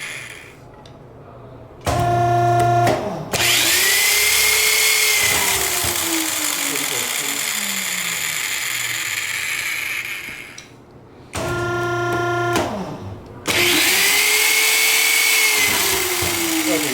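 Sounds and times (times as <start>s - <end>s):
power drill driving a screw: 3.4s - 10.7s, 13.5s - 16.9s.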